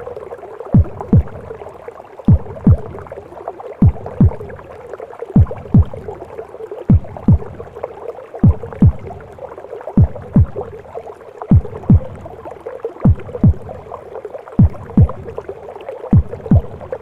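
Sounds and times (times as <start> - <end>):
heartbeat thumps: 0.7 - 1.6, 2.3 - 3.2, 3.8 - 4.6, 5.4 - 6.2, 6.8 - 7.8, 8.4 - 9.4, 10.0 - 10.8, 11.5 - 14.0, 14.6 - 15.5, 16.1 - 17.0.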